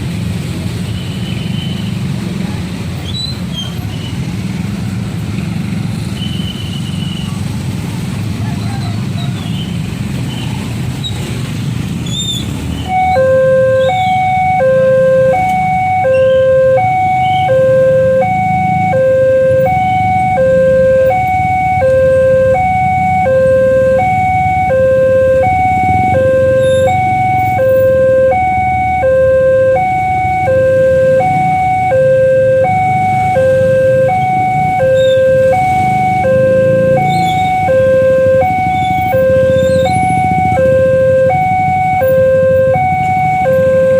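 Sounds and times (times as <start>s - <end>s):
road traffic rumble: 0.0s - 43.9s
level crossing alarm: 12.8s - 43.9s.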